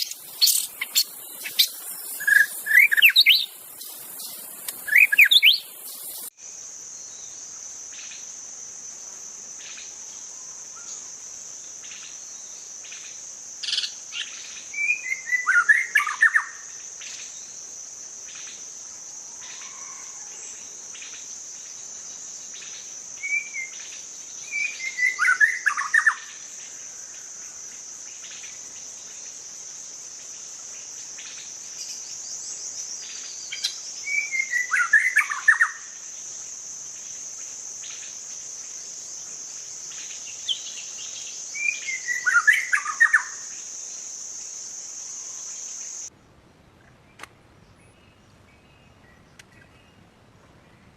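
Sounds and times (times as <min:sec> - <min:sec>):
bird singing whistled phrases: 0:00.0 - 0:03.6, 0:04.2 - 0:06.2
faint bird chips: 0:00.0 - 0:06.3
high-pitched insect drone: 0:00.0 - 0:46.1.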